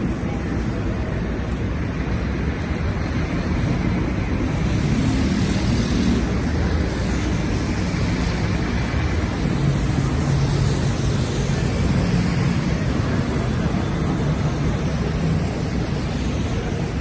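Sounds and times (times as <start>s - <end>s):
passing traffic: 0.0s - 17.0s.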